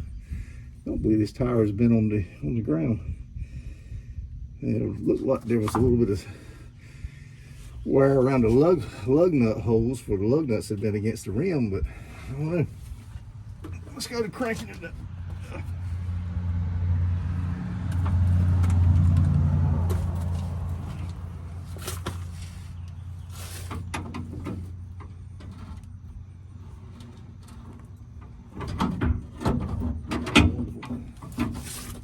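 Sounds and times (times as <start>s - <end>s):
low rumble: 0.0s - 23.4s.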